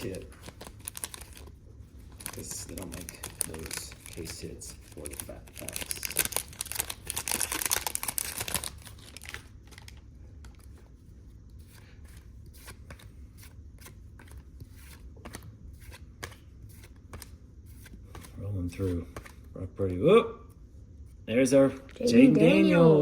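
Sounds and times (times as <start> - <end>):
wrapper tearing and crinkling: 0.0 - 10.0.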